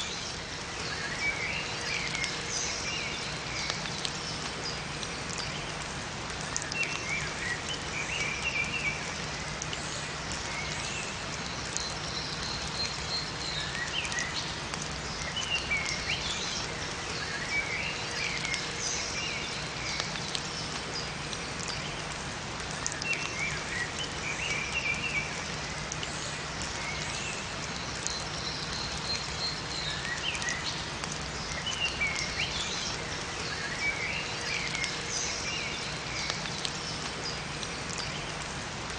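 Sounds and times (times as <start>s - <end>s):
steady rain falling: 0.0s - 38.9s
small birds chirping: 6.4s - 22.1s, 22.7s - 38.5s.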